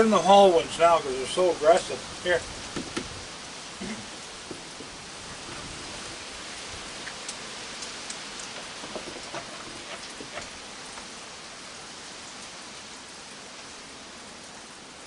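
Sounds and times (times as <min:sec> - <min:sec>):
steady rain: 0:00.0 - 0:15.0
drop-like taps: 0:02.7 - 0:03.1.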